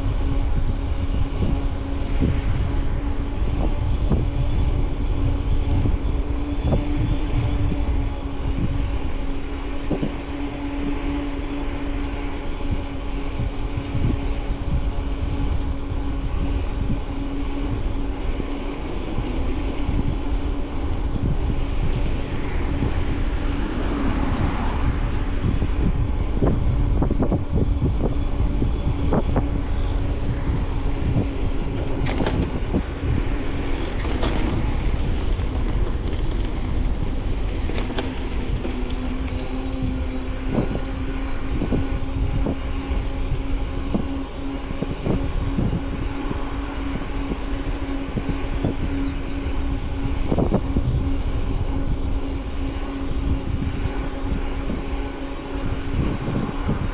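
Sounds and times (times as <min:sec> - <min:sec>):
bicycle tyre rumble: 0:00.0 - 0:56.9
steady low hum: 0:00.0 - 0:56.9
wind on microphone: 0:00.0 - 0:56.9
bike rattling over bumps: 0:24.8 - 0:43.8.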